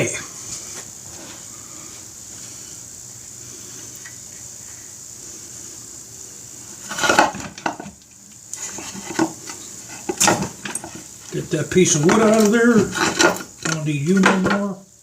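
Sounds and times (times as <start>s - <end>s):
faint hiss: 0.0s - 15.0s
metal parts clattering: 11.9s - 14.7s.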